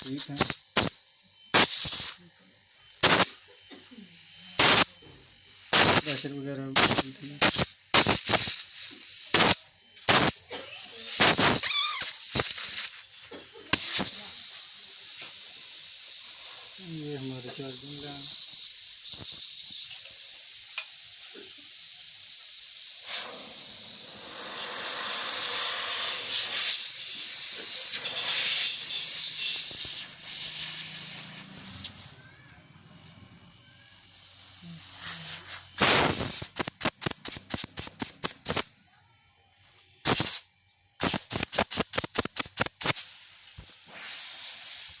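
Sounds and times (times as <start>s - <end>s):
compressor air hiss: 0.0s - 38.8s, 39.8s - 45.0s
rapid sharp clicks: 35.8s - 38.7s, 41.0s - 43.7s.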